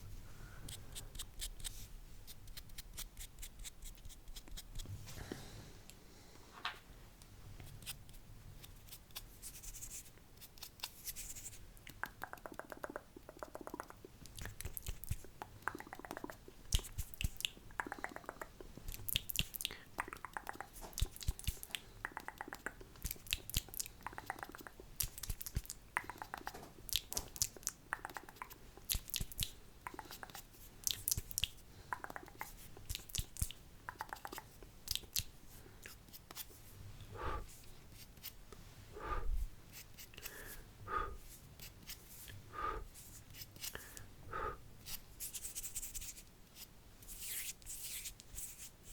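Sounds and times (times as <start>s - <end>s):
tongue clicks: 11.8s - 35.3s
lip smacks: 11.8s - 36.4s.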